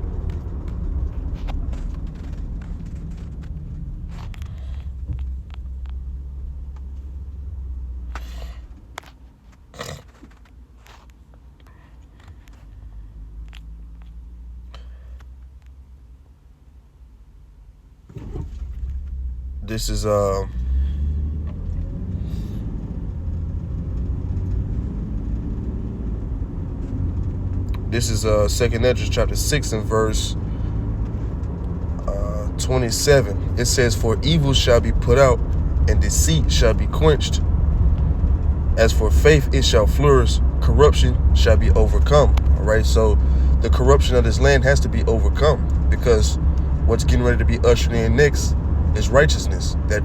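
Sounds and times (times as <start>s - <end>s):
low rumble: 0.0s - 8.2s, 18.5s - 50.0s.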